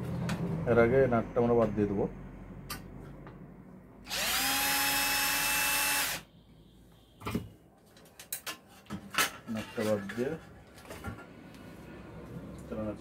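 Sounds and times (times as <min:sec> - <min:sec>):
electric drill whining: 0:04.1 - 0:06.2.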